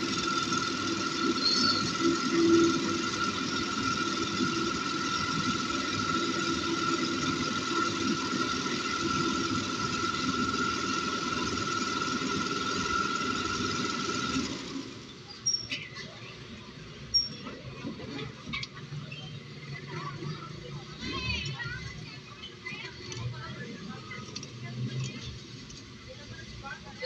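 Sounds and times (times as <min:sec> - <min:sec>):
coil winding machine whining: 0:00.0 - 0:15.7.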